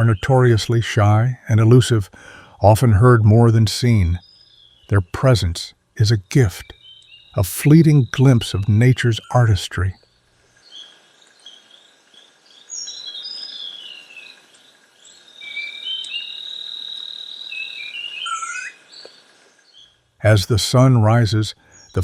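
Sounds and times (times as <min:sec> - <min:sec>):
birds chirping and whistling: 0:00.0 - 0:00.7, 0:06.0 - 0:11.6, 0:12.7 - 0:14.3, 0:15.4 - 0:20.0, 0:21.6 - 0:22.0.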